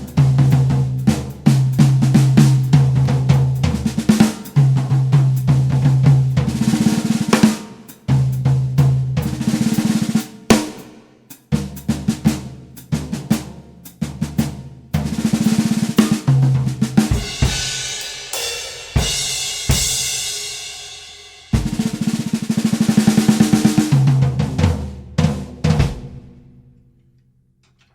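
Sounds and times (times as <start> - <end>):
bass drum strokes: 15.0 - 26.5
cymbal crashes: 17.1 - 22.0.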